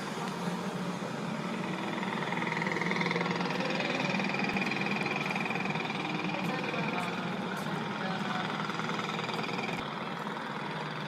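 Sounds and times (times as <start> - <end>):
small motorcycle engine buzzing: 0.0 - 11.0.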